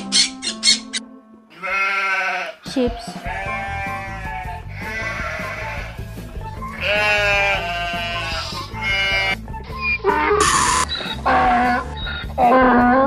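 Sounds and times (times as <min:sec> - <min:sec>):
background music: 0:00.0 - 0:13.0
sheep bleating: 0:01.5 - 0:09.4, 0:11.2 - 0:13.0.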